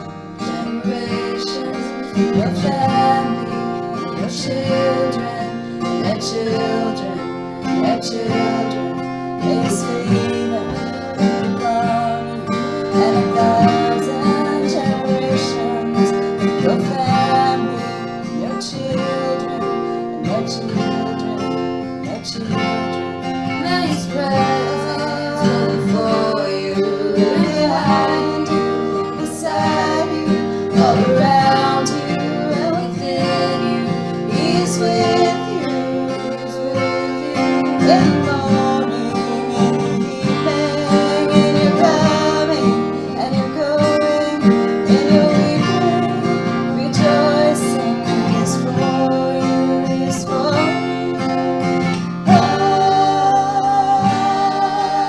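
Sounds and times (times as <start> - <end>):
acoustic guitar strumming: 0.0 - 55.0
person singing: 0.0 - 55.0.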